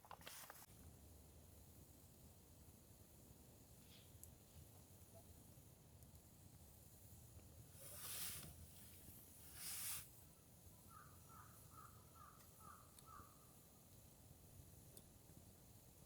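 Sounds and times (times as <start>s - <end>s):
hissing rustles: 7.7s - 10.2s.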